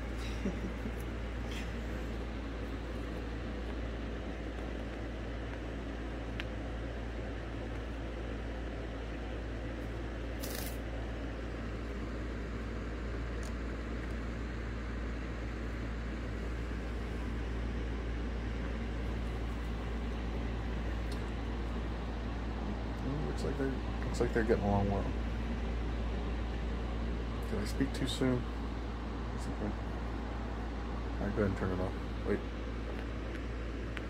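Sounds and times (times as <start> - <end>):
low hum and hiss: 0.0 - 34.0.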